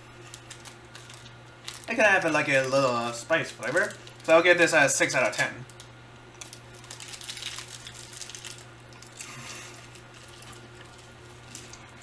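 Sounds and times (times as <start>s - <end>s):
person chewing candy: 6.5s - 12.0s.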